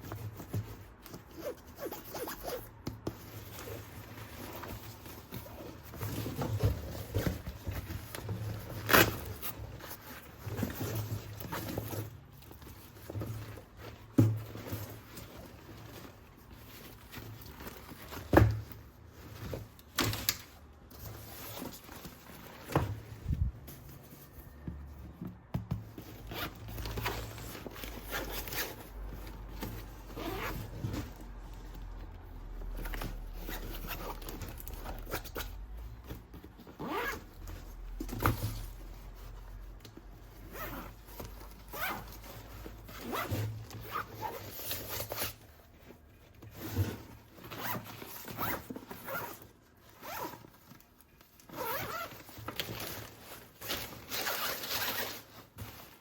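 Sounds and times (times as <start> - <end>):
packaging ripping and scraping: 46.4 - 56.0.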